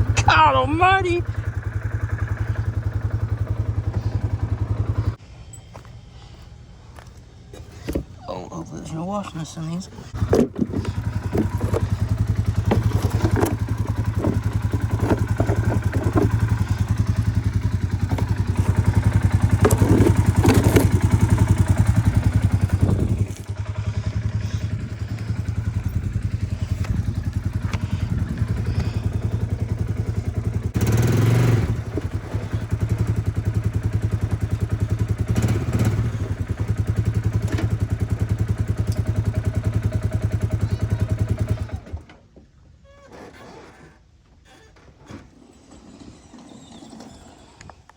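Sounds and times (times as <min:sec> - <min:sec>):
atv engine running: 0:00.0 - 0:06.0, 0:10.0 - 0:42.1
clattering knocks: 0:10.2 - 0:17.4.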